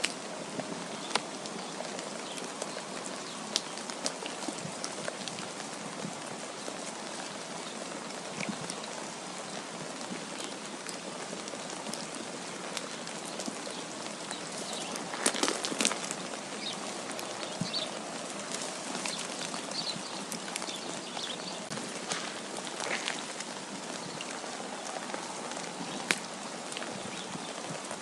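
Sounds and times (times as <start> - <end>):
rain pattering on a surface: 0.0 - 28.0.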